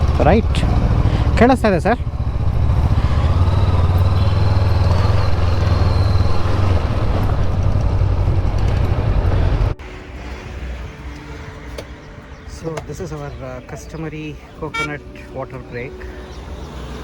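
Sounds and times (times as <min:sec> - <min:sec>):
motorcycle engine rumble: 0:00.0 - 0:10.9, 0:14.4 - 0:15.1
road and wind noise: 0:00.0 - 0:17.0.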